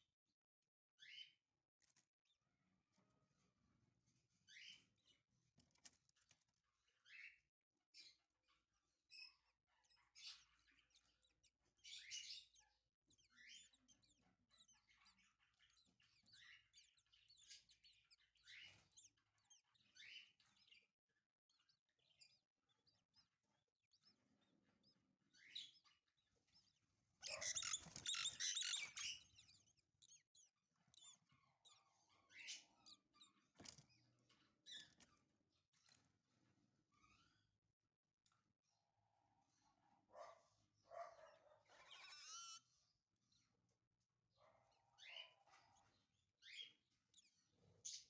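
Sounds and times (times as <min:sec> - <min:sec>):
chicks chirping: 0:27.2 - 0:31.7.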